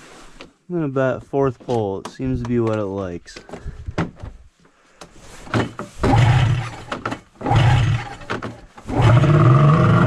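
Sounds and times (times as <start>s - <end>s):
snowmobile engine starting and running: 5.6s - 10.0s.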